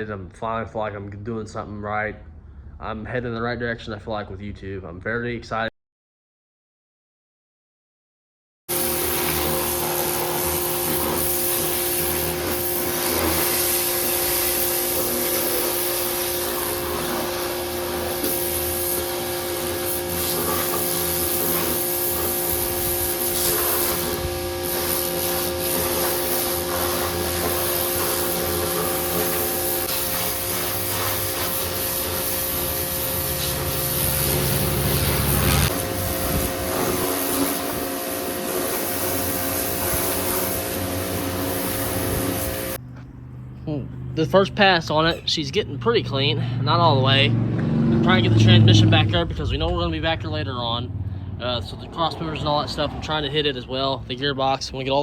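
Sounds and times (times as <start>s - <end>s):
pressure washer spraying: 8.7s - 42.8s, 48.0s - 50.7s
washer motor and pump hum: 8.7s - 43.0s.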